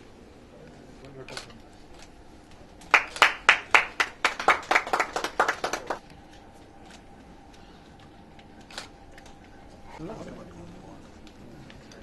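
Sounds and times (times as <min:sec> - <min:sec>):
hand clapping: 0:02.8 - 0:06.0.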